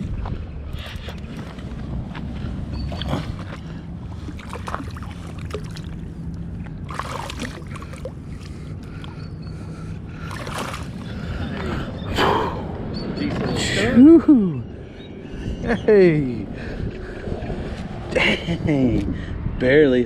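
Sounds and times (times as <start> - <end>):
steady low hum: 0.0 - 19.6
fish splashing in water: 4.1 - 9.2, 10.2 - 11.2.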